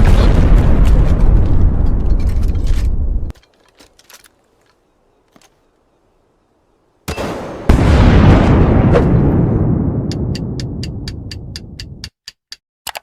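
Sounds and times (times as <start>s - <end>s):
loud rumbling explosion: 0.0s - 3.3s, 7.7s - 11.1s.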